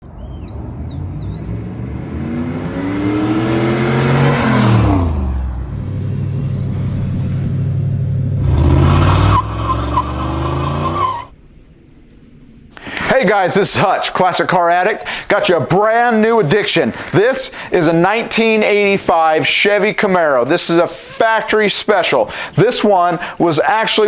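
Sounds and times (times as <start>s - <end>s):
car engine accelerating: 0.0s - 11.4s.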